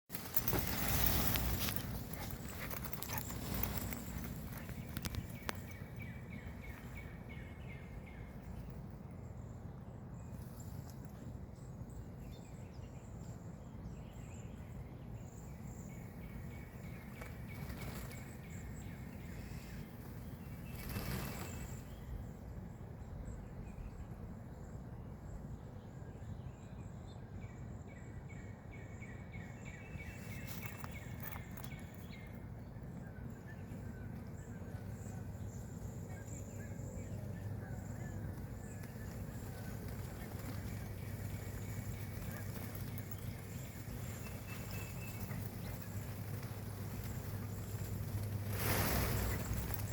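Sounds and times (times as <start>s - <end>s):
birds chirping faintly: 0.1s - 27.2s, 27.8s - 49.9s
low background rumble: 29.7s - 49.9s.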